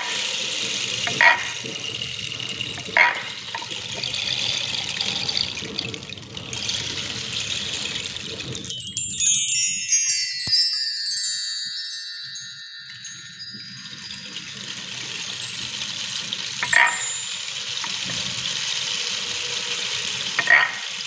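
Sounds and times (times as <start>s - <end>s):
flowing water: 0.0s - 9.9s, 11.3s - 21.0s
metal chimes cascading: 0.0s - 20.6s.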